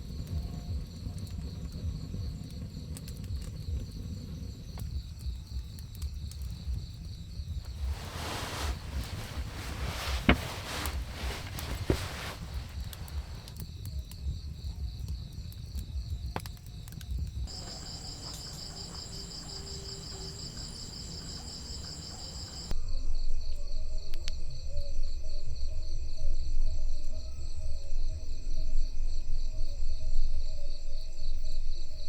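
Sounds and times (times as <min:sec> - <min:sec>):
crickets chirping: 0:00.1 - 0:16.4, 0:17.2 - 0:22.8.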